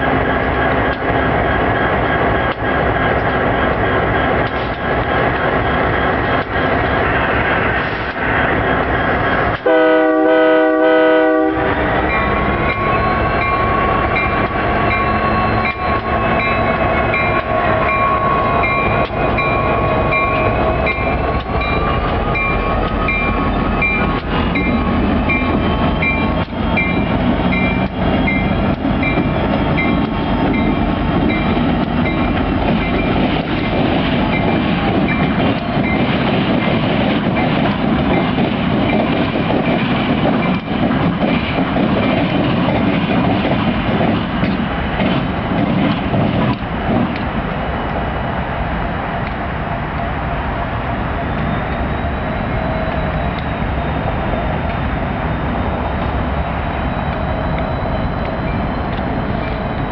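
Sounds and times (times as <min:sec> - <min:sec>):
locomotive engine rumble and whine: 0:00.0 - 0:59.9
locomotive horn blast: 0:09.6 - 0:16.4
wheels clicking on rails: 0:11.7 - 0:48.1.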